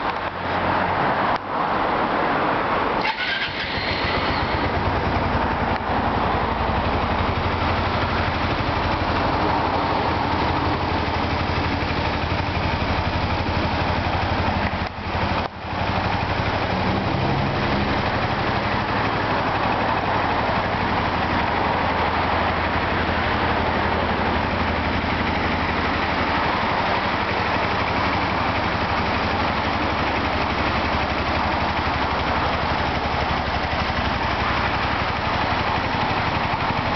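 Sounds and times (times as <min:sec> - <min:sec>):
motorcycle engine idling: 0:03.0 - 0:36.9.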